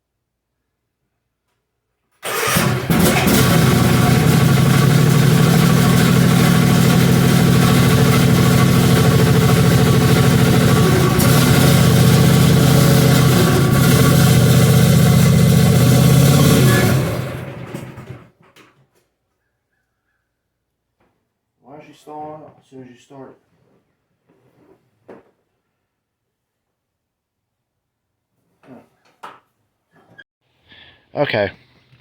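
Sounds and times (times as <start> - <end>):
lawn mower engine running: 2.2 - 18.3.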